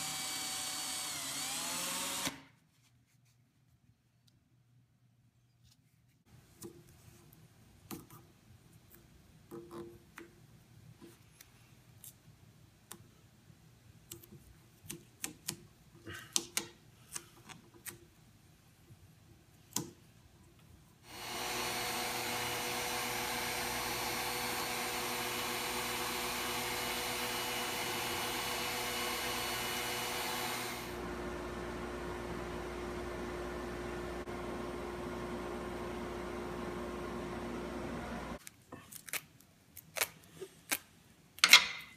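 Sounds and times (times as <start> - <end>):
drill press motor running: 0.0 - 2.4, 21.1 - 31.1.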